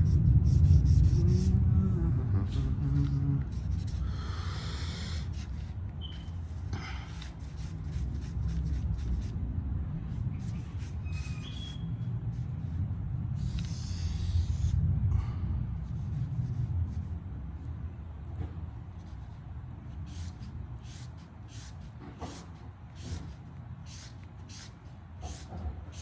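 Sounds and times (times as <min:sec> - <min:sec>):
drawing strokes on paper: 0:00.0 - 0:09.4, 0:10.0 - 0:14.8, 0:15.8 - 0:17.2, 0:18.9 - 0:26.0
low room rumble: 0:00.0 - 0:26.0
high squeaks of drawing tip: 0:05.4 - 0:06.6, 0:10.3 - 0:12.1.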